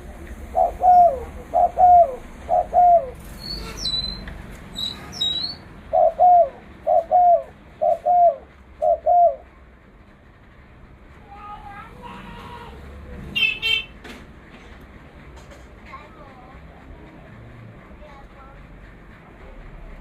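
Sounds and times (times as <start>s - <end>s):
dove cooing: 0.0s - 3.2s, 5.9s - 9.4s
small bird chirping: 0.5s - 8.3s.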